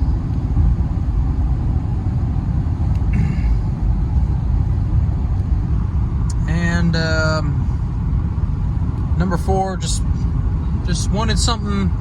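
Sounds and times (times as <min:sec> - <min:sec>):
road and engine rumble in car: 0:00.0 - 0:12.0.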